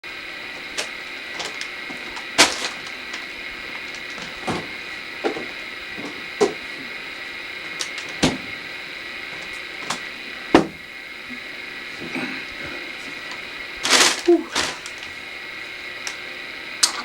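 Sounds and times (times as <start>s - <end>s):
steady high-pitched hum: 0.0s - 17.0s
sharp knocks: 9.8s - 10.8s.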